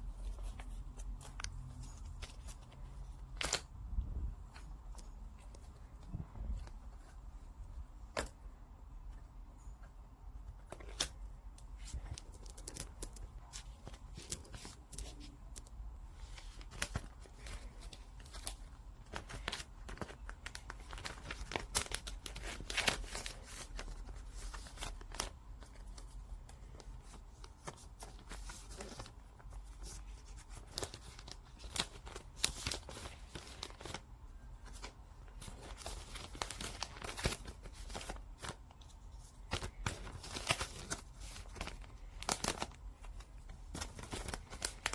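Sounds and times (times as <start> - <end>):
paper or plastic crinkling: 10.5 - 34.0, 34.6 - 44.9.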